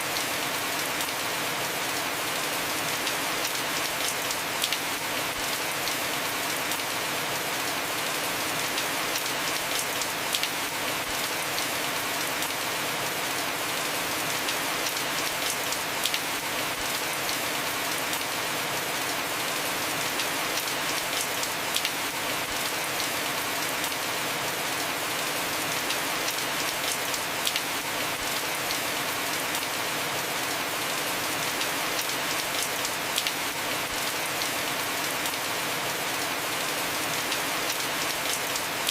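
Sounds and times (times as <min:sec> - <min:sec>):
heavy rain on a roof: 0:00.0 - 0:38.9.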